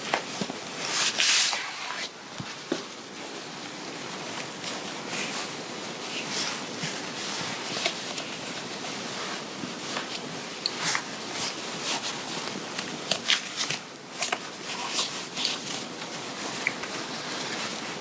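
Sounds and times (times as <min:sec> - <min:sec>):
fabric rustling: 0:00.0 - 0:13.6
steady hiss: 0:00.0 - 0:13.6.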